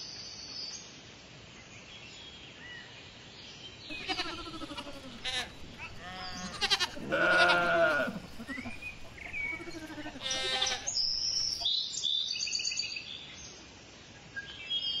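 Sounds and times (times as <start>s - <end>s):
goat bleating: 3.9s - 11.7s
high chirping: 3.9s - 11.7s.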